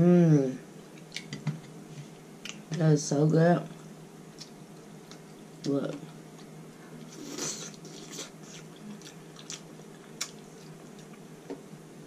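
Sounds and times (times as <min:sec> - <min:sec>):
person chewing food: 0:06.3 - 0:11.6.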